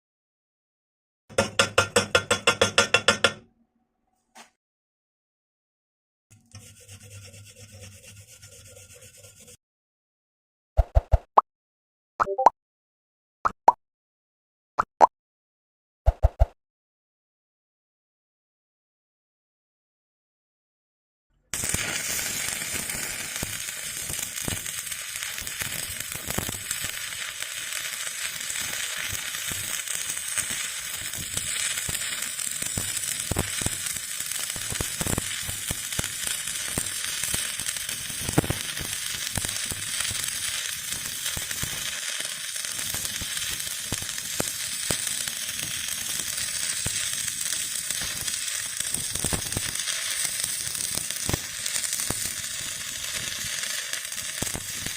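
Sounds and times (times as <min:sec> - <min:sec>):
welding arc crackling: 0:21.6 - 0:54.9.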